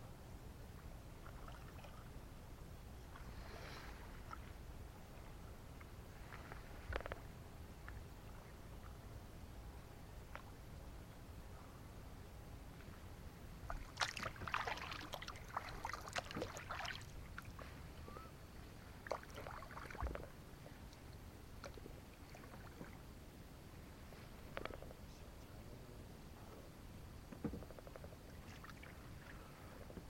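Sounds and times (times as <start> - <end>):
paddle splashing in water: 13.7 - 17.8.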